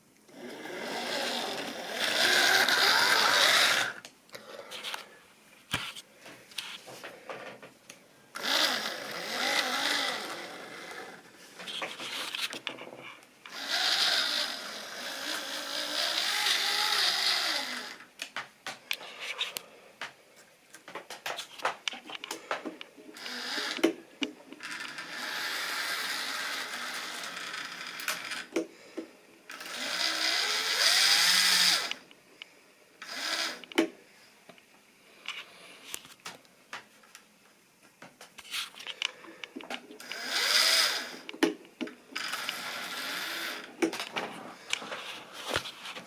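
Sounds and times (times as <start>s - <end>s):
model train motor whine: 0.3s - 4.0s, 8.4s - 11.3s, 13.5s - 18.0s, 23.2s - 23.9s, 24.6s - 28.5s, 29.5s - 32.0s, 33.0s - 33.6s, 40.0s - 41.3s, 42.2s - 43.7s.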